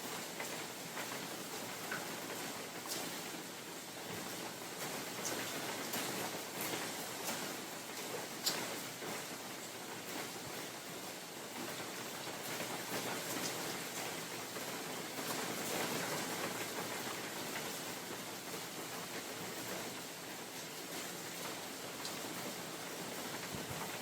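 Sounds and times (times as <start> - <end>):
raindrops tapping on leaves: 0.0 - 24.0
rain hissing: 19.2 - 24.0.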